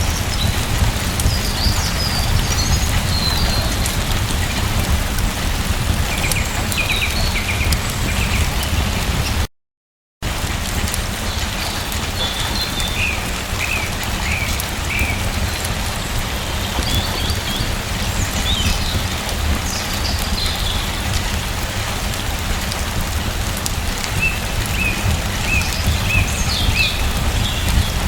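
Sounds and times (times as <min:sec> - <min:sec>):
rain falling: 0:00.0 - 0:09.5, 0:10.2 - 0:28.0.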